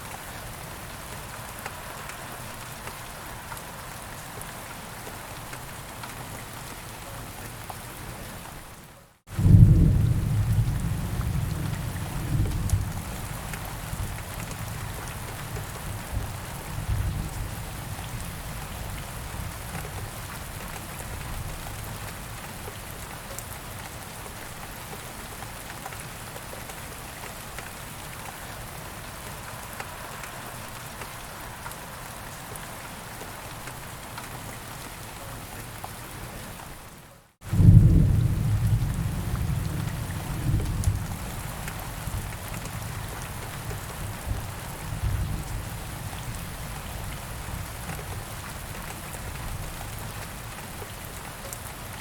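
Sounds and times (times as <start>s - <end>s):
steady rain falling: 0.0s - 52.0s
thunder rumble: 37.5s - 41.4s.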